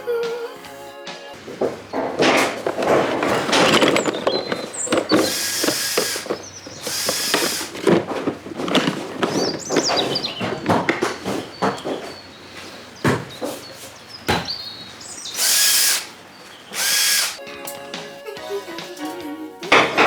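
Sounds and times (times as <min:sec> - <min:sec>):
tools clattering and knocking: 0:01.4 - 0:14.5
short squeaks: 0:02.4 - 0:12.8
high hissing bursts: 0:04.8 - 0:07.8, 0:15.3 - 0:17.4.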